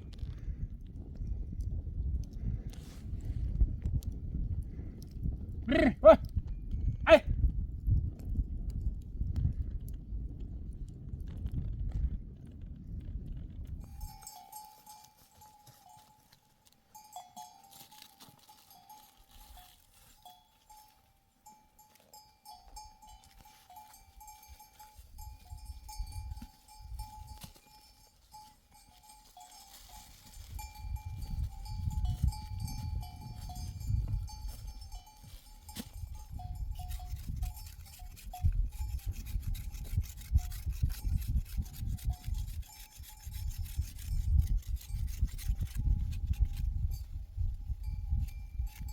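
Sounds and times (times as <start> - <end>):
animal bells clinking: 13.8 - 48.9.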